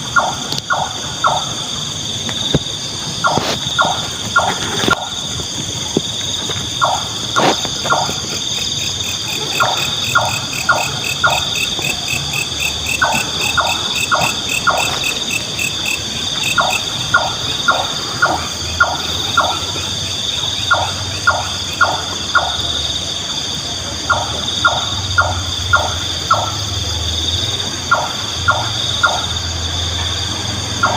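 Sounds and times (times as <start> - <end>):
nightjar calling: 0.0 - 1.8, 3.2 - 5.3, 6.7 - 23.0, 27.9 - 29.6, 30.6 - 30.9
crickets and night insects chorus: 0.0 - 30.9.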